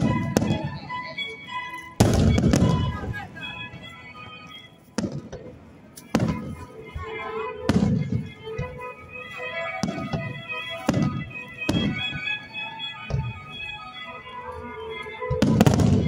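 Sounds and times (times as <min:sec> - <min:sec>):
music with sustained tones: 0:00.0 - 0:16.0
firework shells bursting: 0:02.0 - 0:03.0.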